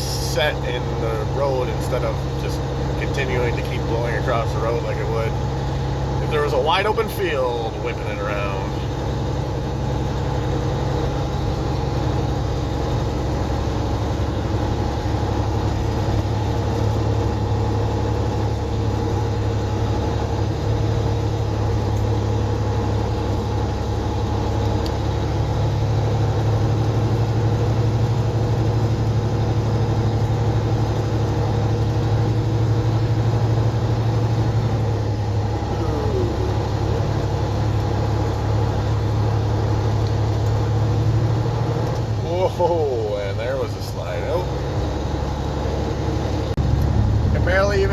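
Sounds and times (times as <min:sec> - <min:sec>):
road noise: 0:00.0 - 0:47.9
truck diesel engine drone: 0:00.0 - 0:47.9.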